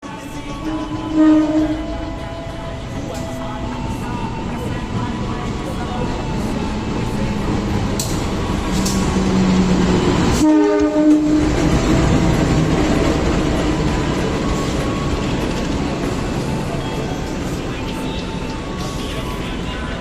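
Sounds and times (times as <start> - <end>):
train horn: 0.0 - 2.7, 8.0 - 12.7
train wheels rumbling on rails: 0.0 - 20.0.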